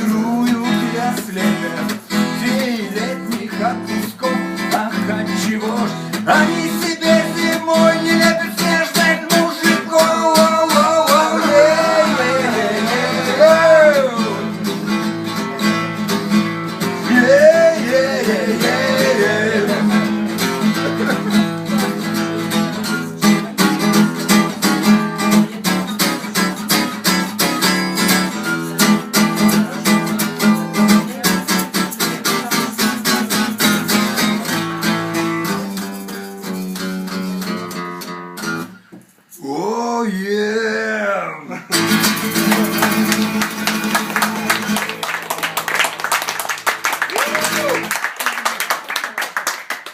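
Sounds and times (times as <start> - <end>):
person singing: 0.0 - 14.7, 17.0 - 22.2
acoustic guitar strumming: 0.0 - 39.2, 41.6 - 47.9.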